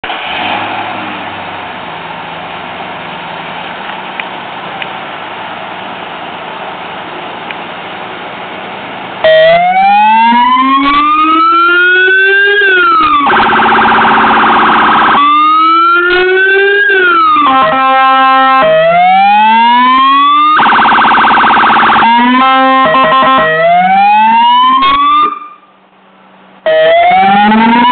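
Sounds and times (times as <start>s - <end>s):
police siren wailing: 9.2s - 25.7s, 26.6s - 27.9s
buzzing horn tone: 22.2s - 23.6s.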